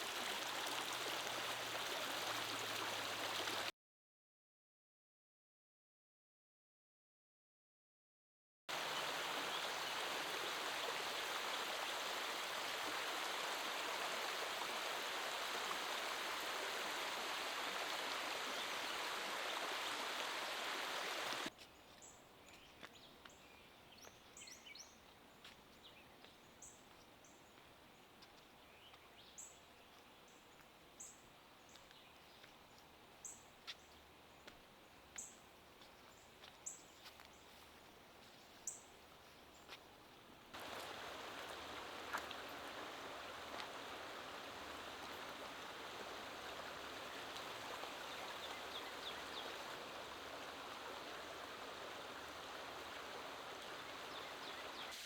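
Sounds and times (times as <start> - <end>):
creek water rushing: 0.0 - 3.7, 8.7 - 21.5, 40.5 - 55.0.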